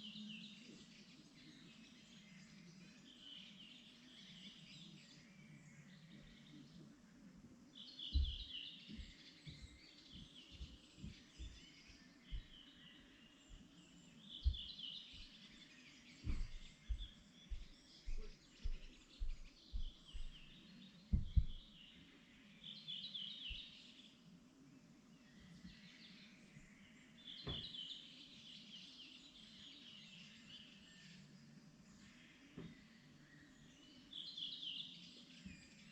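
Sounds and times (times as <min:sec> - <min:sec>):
songbirds trilling: 0:00.0 - 0:35.9
low thumps and rumbles: 0:16.2 - 0:18.3, 0:21.1 - 0:21.7.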